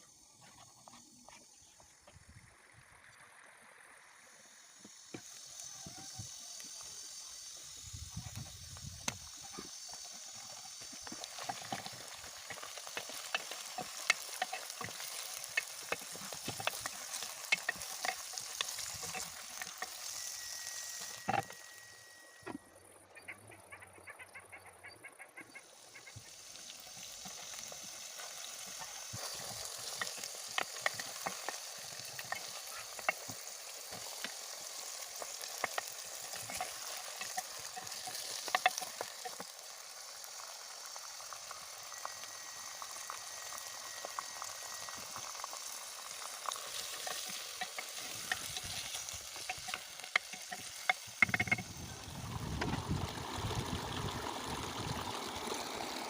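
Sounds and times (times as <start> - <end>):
food sizzling in a frying pan: 0.0 - 22.6, 25.5 - 56.0
utensil clicking against pan: 11.2 - 20.2, 28.8 - 39.5, 46.0 - 51.7.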